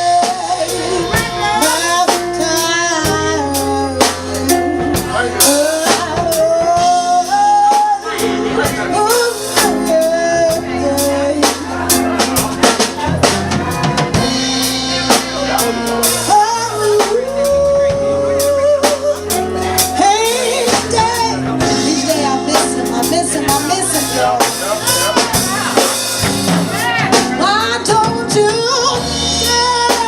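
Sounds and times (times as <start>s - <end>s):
bass line: 0.0s - 30.0s
drum kit beat: 0.0s - 30.0s.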